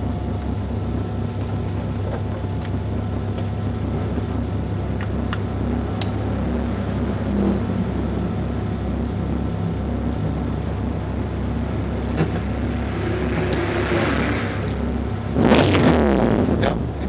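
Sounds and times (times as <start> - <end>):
car engine drone: 0.0 - 17.0
road and wind noise: 2.6 - 16.0.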